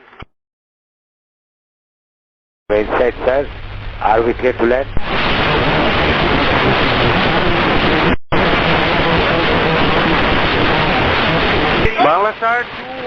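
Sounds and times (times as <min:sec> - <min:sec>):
radio hiss: 0:02.7 - 0:13.0.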